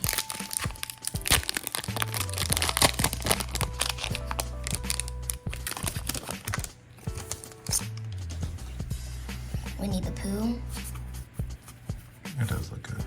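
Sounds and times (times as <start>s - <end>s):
foil wrapper tearing and crinkling: 0.0s - 8.2s
background music with beat: 0.0s - 13.0s.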